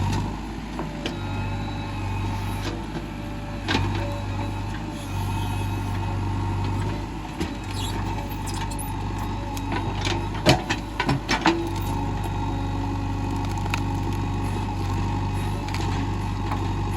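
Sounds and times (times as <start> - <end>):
diesel engine running: 0.0 - 16.9.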